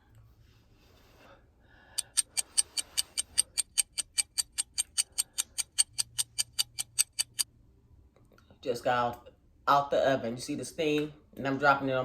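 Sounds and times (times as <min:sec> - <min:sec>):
rapid even ticking: 0:02.0 - 0:07.5.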